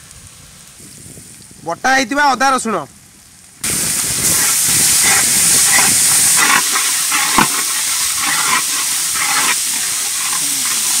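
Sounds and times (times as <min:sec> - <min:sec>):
onions sizzling in hot oil: 0:00.0 - 0:11.0
ladle scraping a pan: 0:04.2 - 0:11.0.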